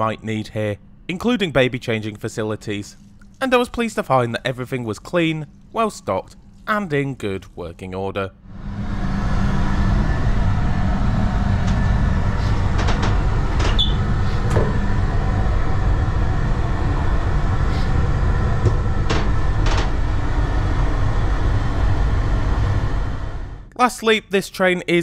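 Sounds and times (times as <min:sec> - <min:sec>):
train rumbling inside: 0:08.5 - 0:23.7.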